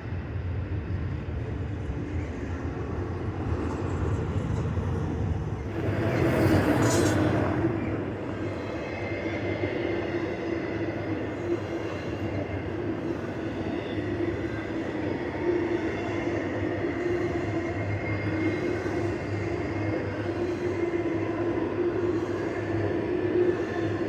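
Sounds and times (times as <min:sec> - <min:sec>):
train wheels rumbling on rail: 0:01.1 - 0:10.8.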